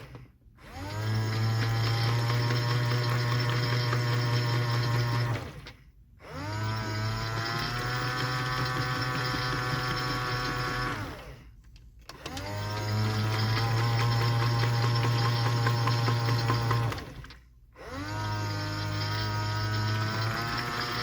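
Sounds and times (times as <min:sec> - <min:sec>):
washing machine motor humming: 0:12.2 - 0:21.0.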